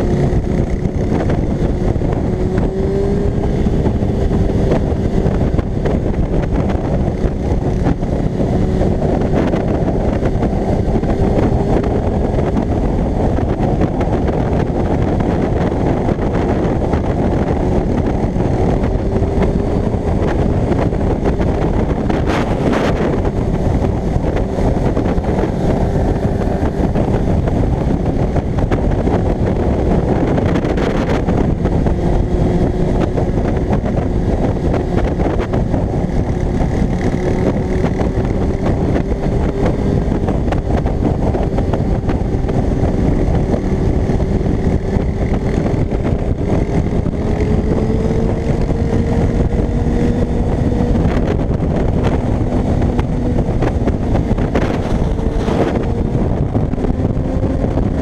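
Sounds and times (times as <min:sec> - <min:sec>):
motorcycle engine cruising: 0:00.0 - 0:58.0
wind rushing over microphone: 0:00.0 - 0:58.0.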